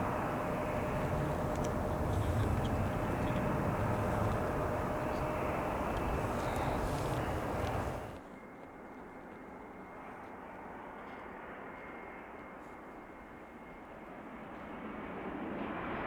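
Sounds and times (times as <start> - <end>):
distant jet airliner engines: 0.0 - 8.2.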